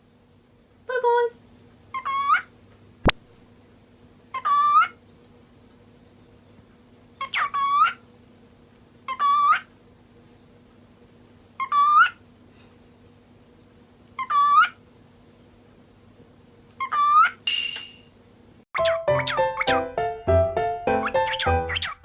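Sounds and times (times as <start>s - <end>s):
cockatiel whistling call: 21.0s - 22.0s.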